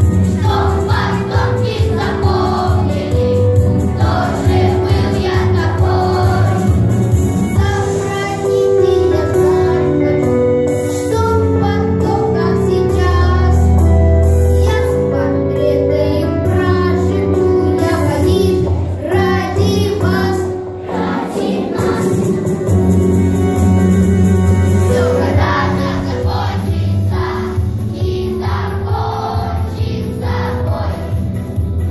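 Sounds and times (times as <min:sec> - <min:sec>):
children singing in unison: 0:00.0 - 0:06.9, 0:19.1 - 0:22.7, 0:24.9 - 0:31.2
instrumental accompaniment: 0:00.0 - 0:31.9.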